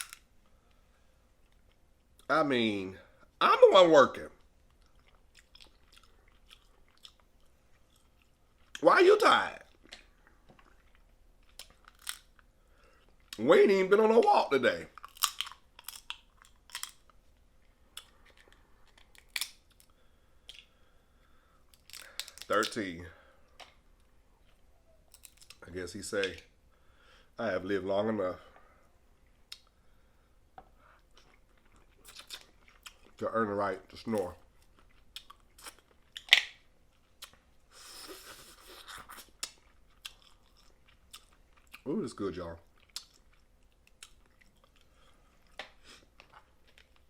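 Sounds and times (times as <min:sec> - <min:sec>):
crab shell cracking: 0:11.5 - 0:12.4, 0:15.0 - 0:17.2, 0:18.0 - 0:20.7, 0:21.7 - 0:22.8, 0:36.1 - 0:36.6.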